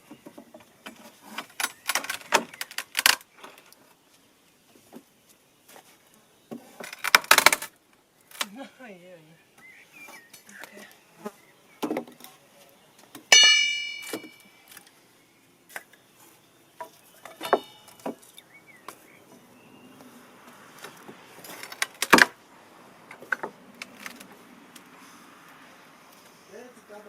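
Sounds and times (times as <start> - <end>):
sharp knock: 13.3 - 14.4
ringing metallic clang: 13.3 - 14.6, 17.4 - 18.0.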